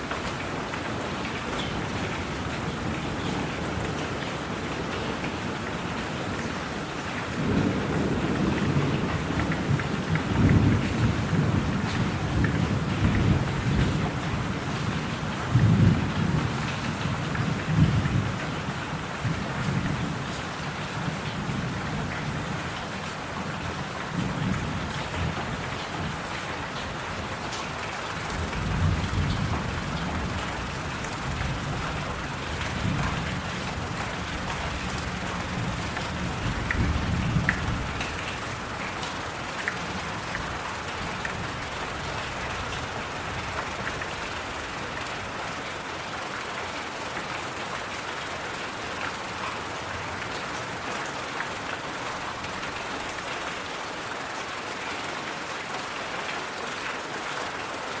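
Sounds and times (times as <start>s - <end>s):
steady rain: 0.0s - 58.0s
rolling thunder: 28.2s - 38.7s.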